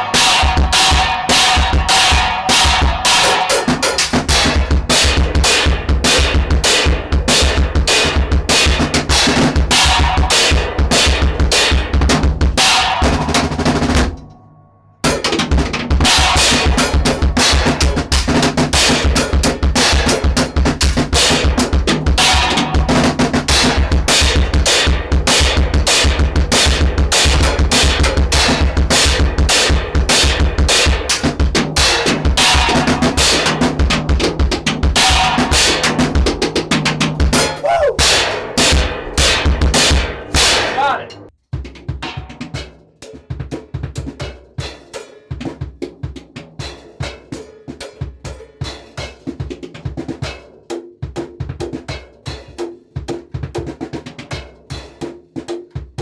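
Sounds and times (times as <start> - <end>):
drum kit playing: 0.0 - 14.3, 15.0 - 47.4
snare drum hits: 37.4 - 41.0.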